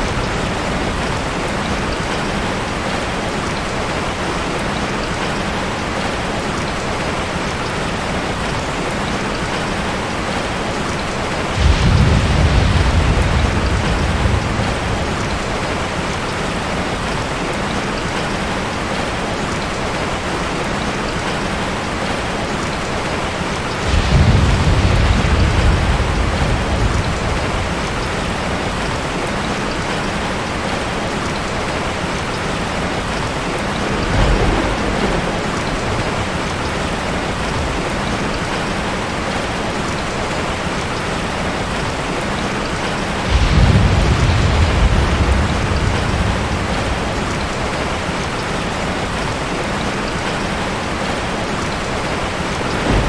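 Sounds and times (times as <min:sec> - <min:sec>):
steady wash of surf: 0:10.8 - 0:17.5, 0:21.9 - 0:53.0
waves breaking: 0:33.3 - 0:38.8, 0:43.2 - 0:49.2.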